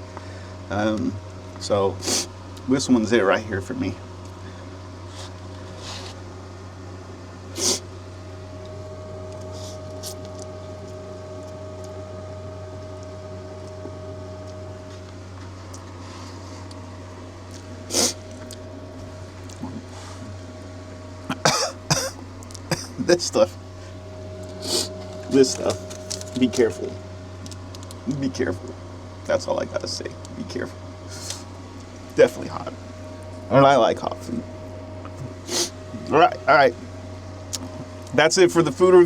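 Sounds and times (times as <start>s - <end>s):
steady low hum: 0.0s - 39.0s
man coughing: 21.3s - 23.2s.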